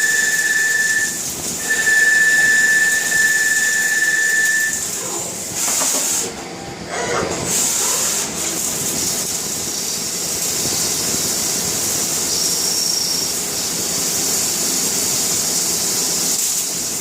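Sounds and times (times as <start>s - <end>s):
high-pitched cutting whistle: 0.0s - 4.9s.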